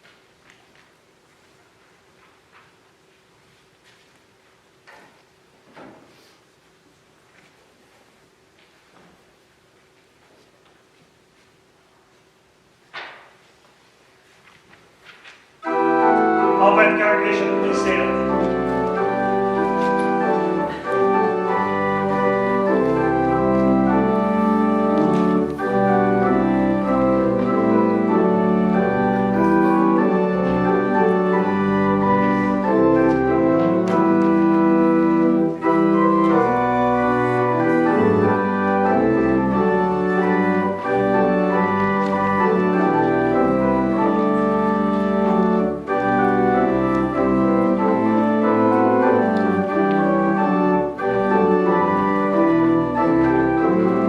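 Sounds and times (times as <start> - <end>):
church organ playing hymn: 15.6 - 54.0.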